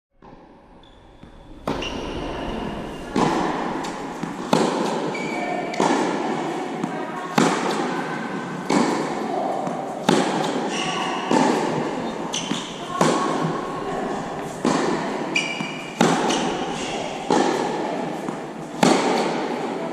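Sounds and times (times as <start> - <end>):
tennis ball hit with rackets: 3.1 - 6.2, 8.6 - 19.4.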